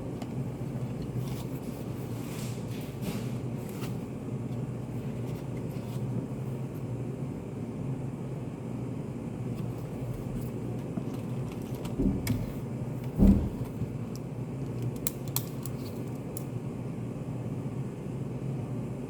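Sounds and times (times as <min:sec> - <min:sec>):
low room hum: 0:00.0 - 0:19.0
thump: 0:13.2 - 0:13.7.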